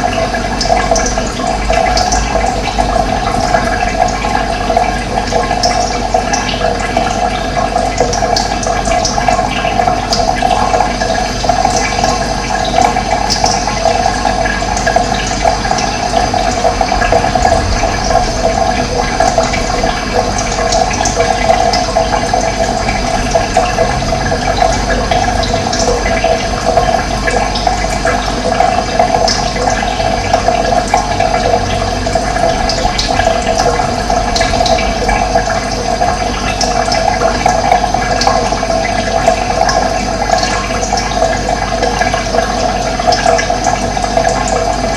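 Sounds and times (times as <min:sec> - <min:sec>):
running water: 0:00.0 - 0:44.9.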